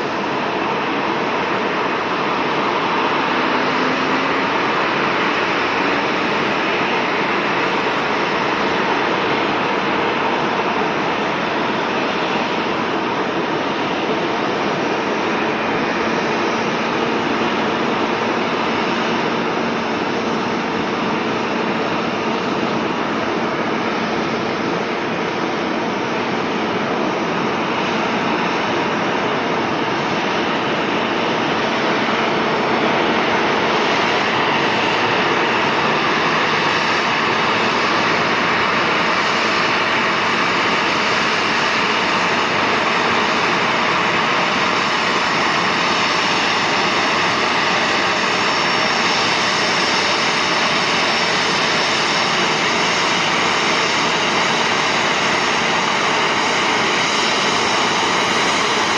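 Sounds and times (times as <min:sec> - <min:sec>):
jet engines whooshing: 0:00.0 - 0:58.9.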